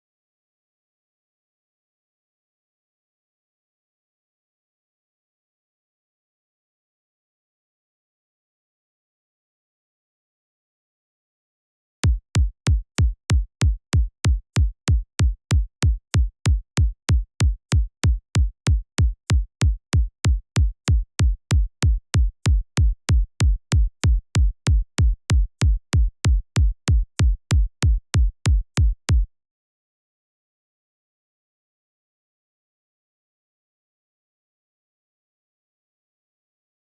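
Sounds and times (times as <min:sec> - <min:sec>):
electronic kick drum: 0:12.0 - 0:29.3.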